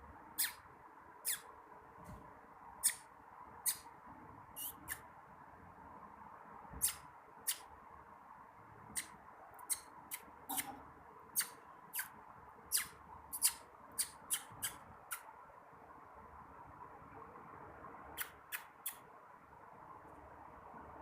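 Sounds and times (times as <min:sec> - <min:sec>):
parrot squeaking: 0:00.4 - 0:00.6, 0:01.2 - 0:01.4, 0:04.6 - 0:05.0, 0:09.7 - 0:10.8, 0:11.4 - 0:12.1, 0:12.7 - 0:15.2.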